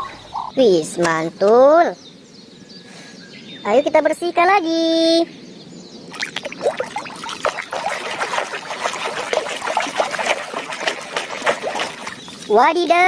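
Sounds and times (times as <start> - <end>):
water splashing and trickling: 6.1 - 13.0.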